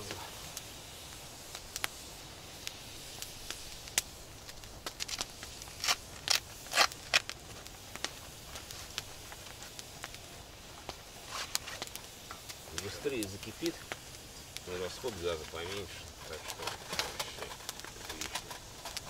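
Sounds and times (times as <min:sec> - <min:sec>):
crinkling rattles: 0:14.8 - 0:19.0.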